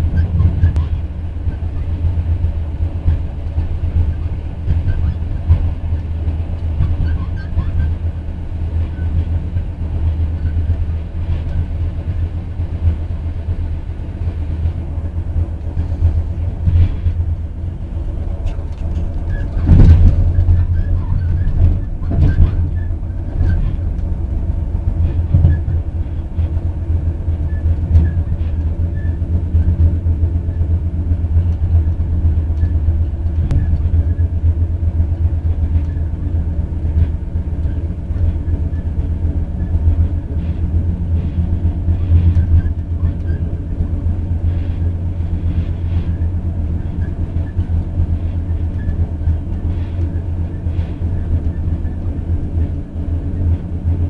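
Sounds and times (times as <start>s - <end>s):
train rumbling on rails: 0.0s - 54.0s
knocks and clatter: 18.4s - 20.6s.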